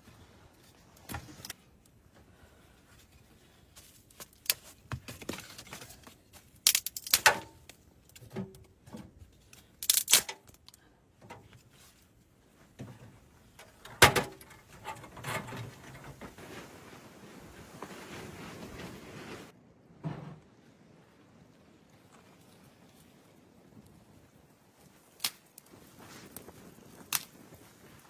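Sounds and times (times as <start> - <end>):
rustling: 9.2 - 19.5
handling knocks and clicks: 12.8 - 16.4.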